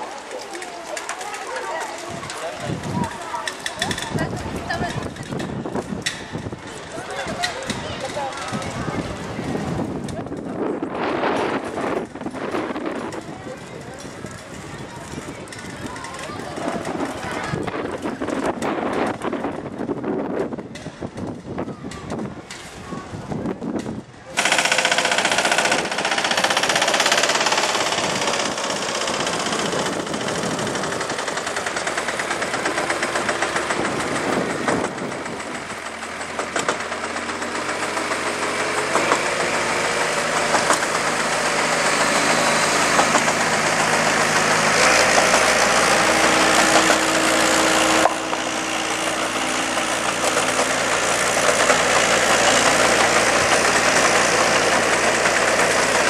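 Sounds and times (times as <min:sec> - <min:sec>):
helicopter engine and rotor: 0:24.4 - 0:56.0.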